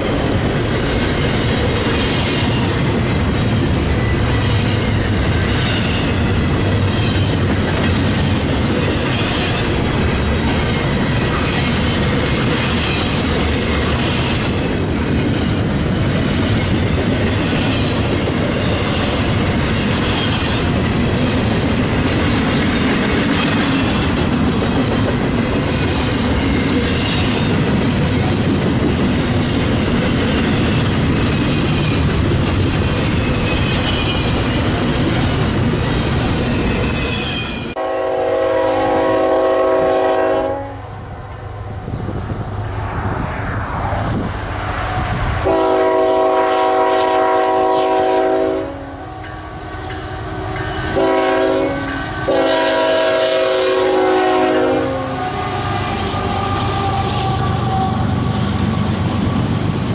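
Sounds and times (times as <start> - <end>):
locomotive air horn blasts: 37.8 - 40.8, 45.4 - 49.2, 50.9 - 58.1.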